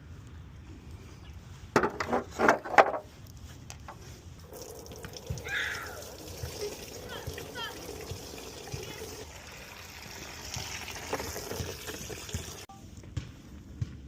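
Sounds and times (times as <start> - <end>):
coolant splashing and trickling: 4.4 - 12.7.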